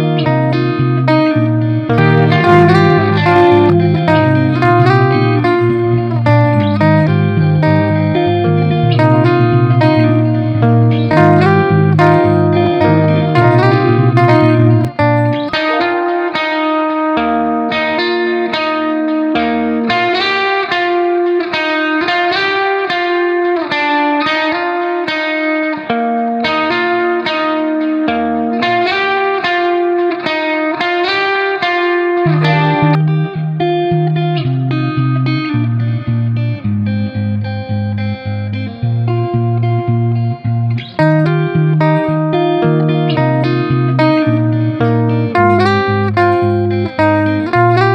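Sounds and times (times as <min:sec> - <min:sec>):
low bass line: 0:00.0 - 0:15.7, 0:32.3 - 0:47.9
plucked guitar notes: 0:00.0 - 0:47.9.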